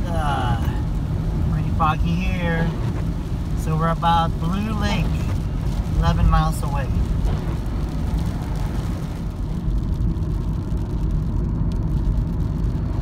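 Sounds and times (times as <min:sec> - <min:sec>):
van cabin road rumble: 0:00.0 - 0:13.0.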